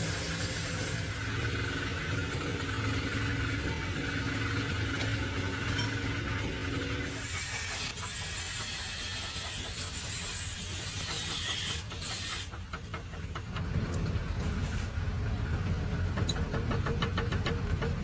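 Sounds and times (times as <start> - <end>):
hiss: 0.0 - 1.8, 7.1 - 12.6
engine running: 0.0 - 7.2.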